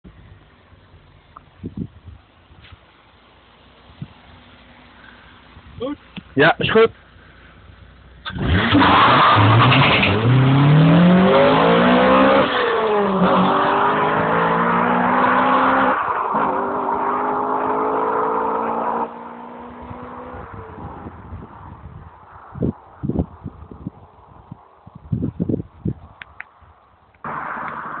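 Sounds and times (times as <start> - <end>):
car engine accelerating: 8.2 - 21.5, 27.2 - 28.0.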